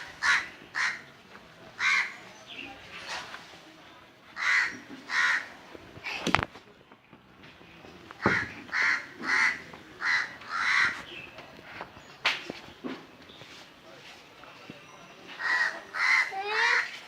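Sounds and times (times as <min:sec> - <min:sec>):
bird cawing: 0:00.2 - 0:01.1, 0:08.2 - 0:11.0.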